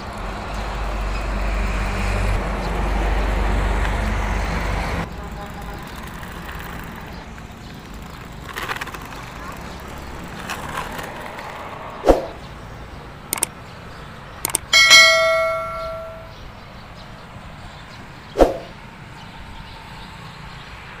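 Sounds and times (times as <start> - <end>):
ringing metallic clang: 14.5 - 16.4.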